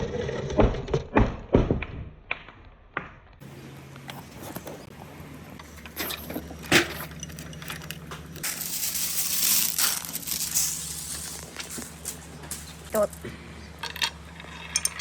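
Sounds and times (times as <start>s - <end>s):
marbles clacking along marble run: 7.2s - 13.2s, 13.8s - 15.0s
loud rushing hiss: 8.4s - 13.0s.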